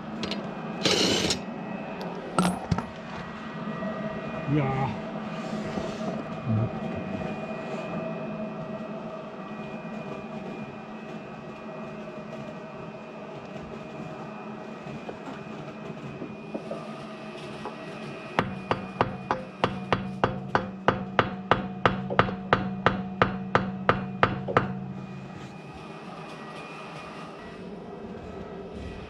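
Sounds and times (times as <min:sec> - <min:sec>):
hammer striking metal wheel: 0:00.2 - 0:01.4, 0:18.4 - 0:25.0.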